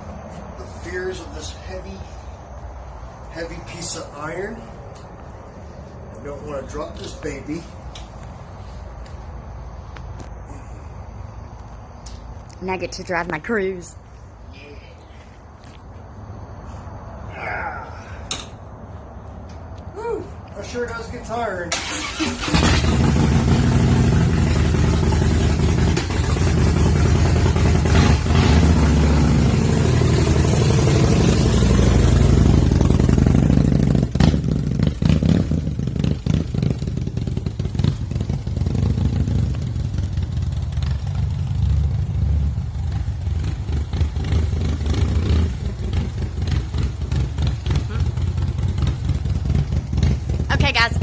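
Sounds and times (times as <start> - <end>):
motorcycle engine idling: 22.0 - 51.0.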